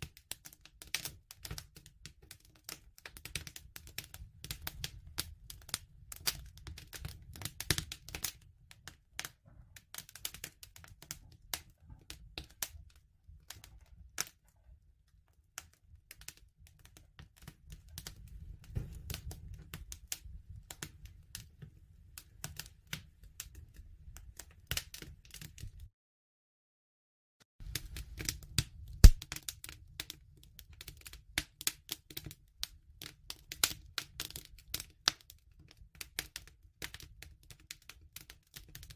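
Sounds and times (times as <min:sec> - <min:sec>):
wood fire crackling and popping: 0:00.0 - 0:25.9, 0:27.6 - 0:38.9
low rumble of flames: 0:03.0 - 0:25.9, 0:27.6 - 0:36.2.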